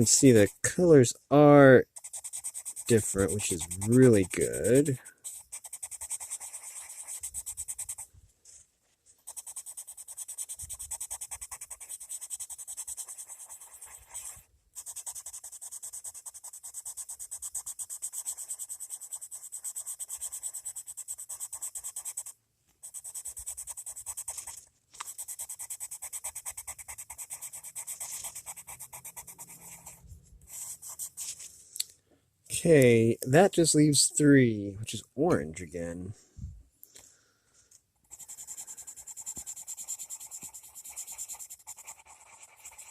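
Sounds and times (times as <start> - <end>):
pencil scratching on paper: 0.0 - 0.8, 1.8 - 8.1, 9.2 - 31.5, 38.0 - 42.9.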